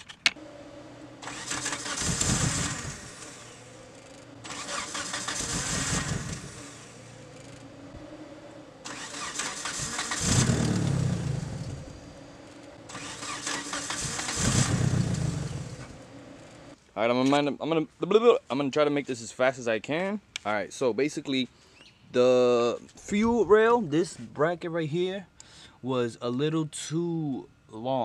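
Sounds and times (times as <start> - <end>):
starter cranking engine: 1.2 - 6.7, 8.8 - 11.8, 12.9 - 15.9.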